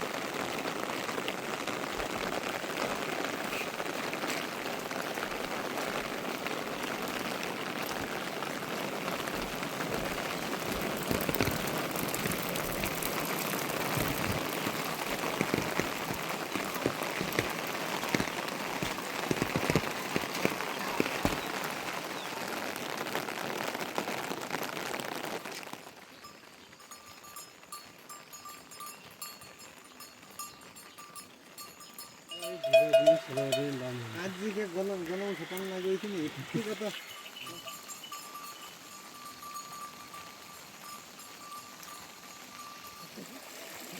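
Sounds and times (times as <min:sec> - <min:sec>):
heavy rain pattering: 0:00.0 - 0:43.9
faint repeating high tone: 0:32.3 - 0:33.9.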